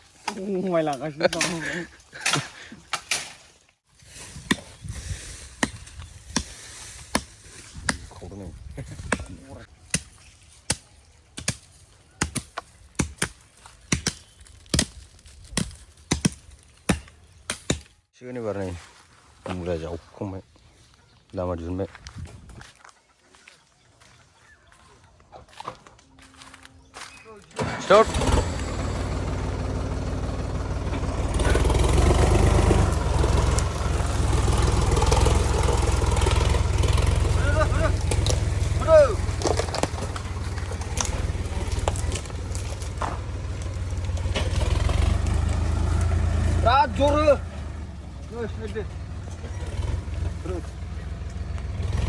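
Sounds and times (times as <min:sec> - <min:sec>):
tractor diesel engine running: 0:26.2 - 0:52.0.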